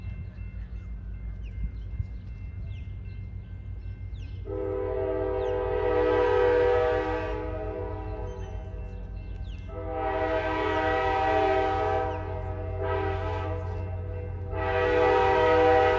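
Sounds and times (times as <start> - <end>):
train engine rumble: 0.0 - 15.9
locomotive horn blast: 4.4 - 9.0, 9.7 - 15.9.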